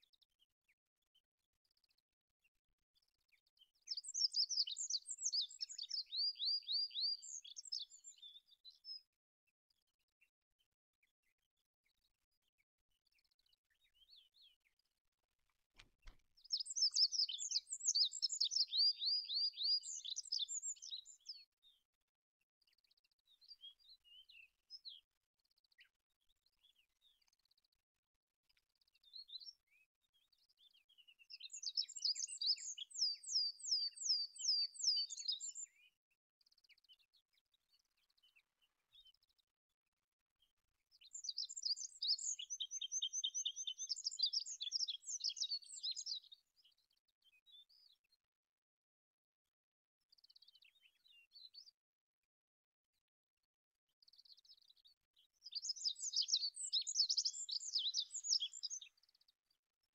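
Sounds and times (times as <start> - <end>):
faint click: 15.5 - 16.3.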